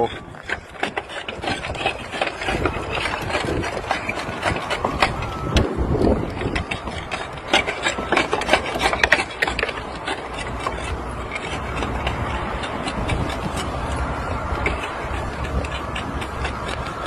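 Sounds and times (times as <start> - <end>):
low engine rumble: 0.0 - 17.0
tile cropper crunching roof tile: 0.0 - 17.0.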